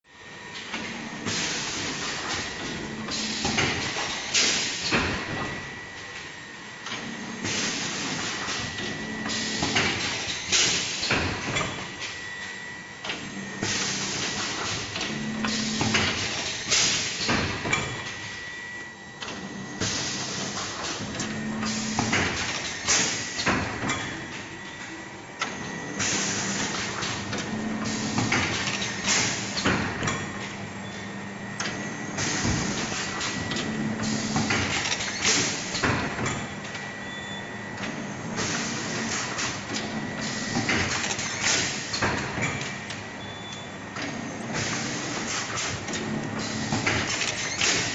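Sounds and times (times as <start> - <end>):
machine hissing bursts: 1.2 - 5.3, 13.6 - 18.1, 19.5 - 23.8, 25.8 - 30.0, 32.1 - 35.8, 38.2 - 42.0
low machine hum: 5.1 - 40.7.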